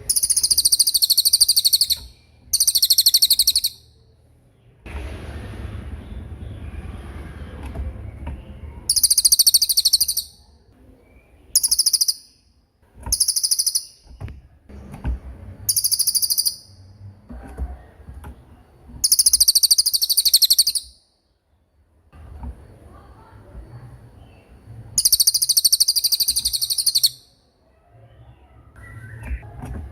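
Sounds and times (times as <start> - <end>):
songbird trilling: 0.0 - 4.0, 8.9 - 10.4, 11.1 - 12.5, 13.1 - 14.1, 15.7 - 16.8, 19.0 - 21.0, 25.0 - 27.4.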